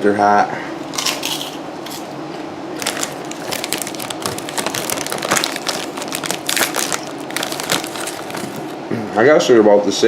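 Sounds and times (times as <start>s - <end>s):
potato chips crunching: 1.0s - 2.0s, 2.8s - 8.8s
crinkling: 2.8s - 8.8s.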